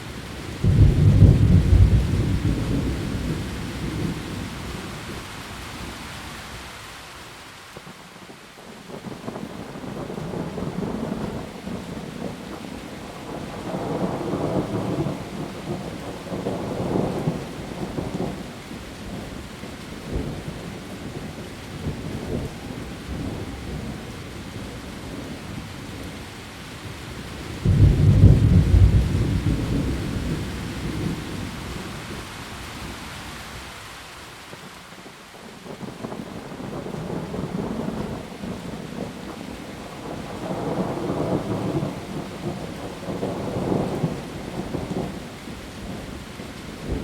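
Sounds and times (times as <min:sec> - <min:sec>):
heavy rain on leaves: 0:00.0 - 0:47.0
rolling thunder: 0:00.6 - 0:04.5, 0:27.6 - 0:31.9.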